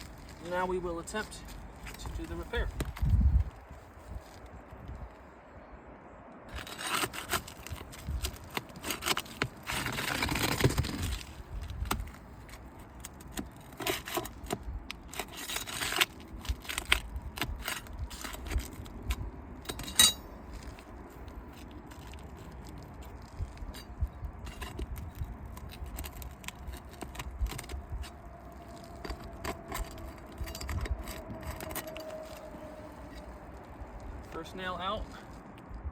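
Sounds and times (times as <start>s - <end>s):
tool scraping roof shingles: 6.5s - 33.4s
sharp metallic clink: 19.7s - 20.4s.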